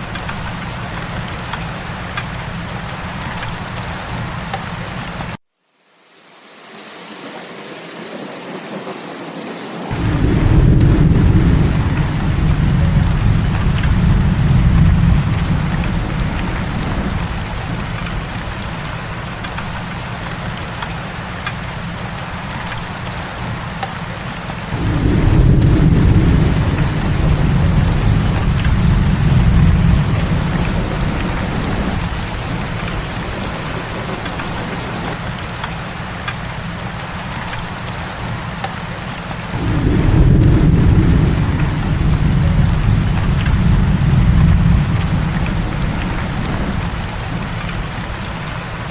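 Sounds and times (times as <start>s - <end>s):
heavy rain: 0.0s - 5.4s, 6.0s - 48.9s
thunder rumbling: 9.9s - 38.0s, 39.4s - 48.9s.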